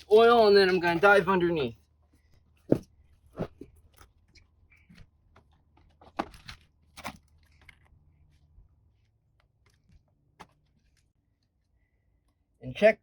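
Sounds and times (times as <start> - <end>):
plastic seal crinkling and tearing: 5.9 - 8.0.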